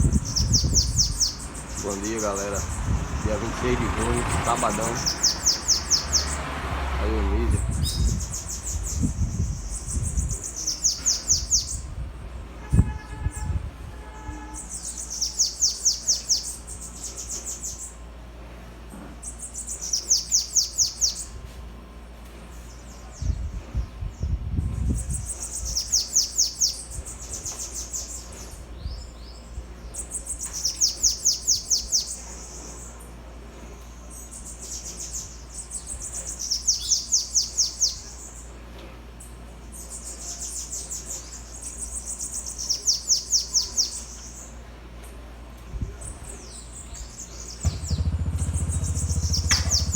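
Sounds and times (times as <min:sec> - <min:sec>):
low rumble: 0:47.6 - 0:49.9.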